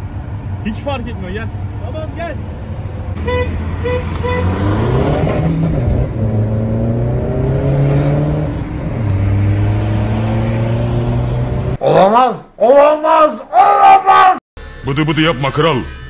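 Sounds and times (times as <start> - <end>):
car engine accelerating: 0.0 - 11.8.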